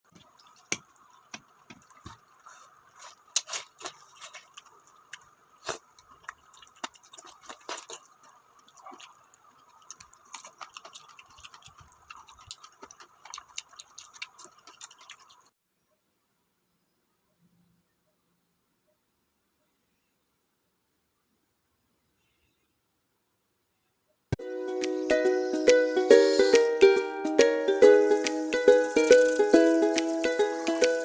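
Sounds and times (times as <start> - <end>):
faint steady hiss: 15.4 - 31.0
utensils clicking on dishes: 28.0 - 31.0.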